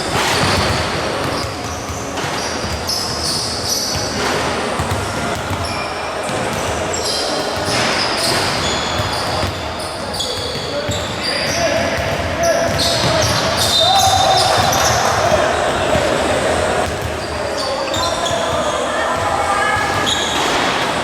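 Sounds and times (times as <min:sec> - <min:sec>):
crowd noise: 0:00.0 - 0:21.0
sneakers squeaking on court: 0:00.0 - 0:21.0
basketball bouncing: 0:00.1 - 0:09.8, 0:12.0 - 0:17.3.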